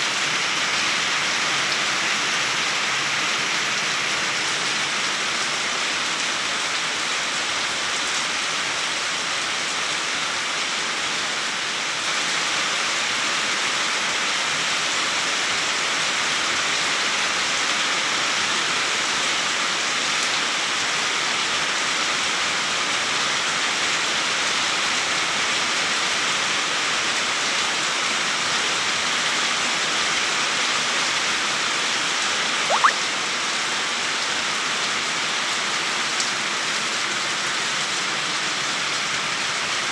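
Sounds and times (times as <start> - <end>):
steady rain: 0.0 - 32.2, 34.0 - 39.9
brief rising squeak: 32.7 - 33.0.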